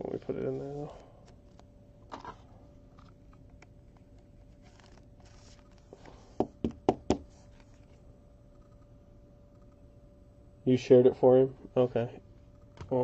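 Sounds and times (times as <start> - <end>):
cards and packaging rustling: 4.1 - 6.2.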